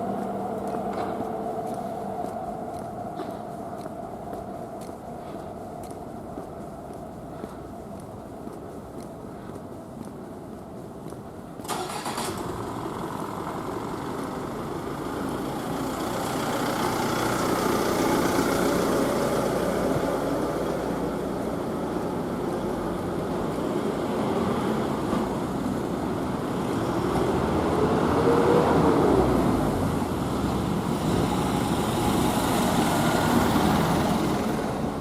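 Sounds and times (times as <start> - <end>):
vehicle engine and tyre noise: 0.0 - 35.0.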